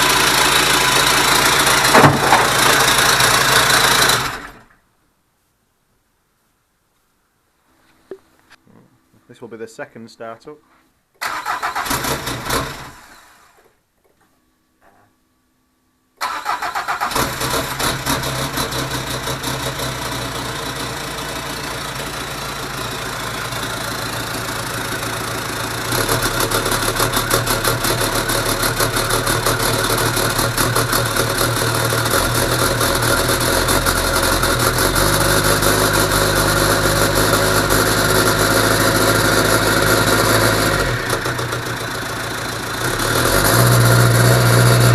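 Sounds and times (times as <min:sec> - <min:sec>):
diesel engine starting and idling: 0:00.0 - 0:04.7, 0:11.2 - 0:13.7, 0:16.2 - 0:44.9.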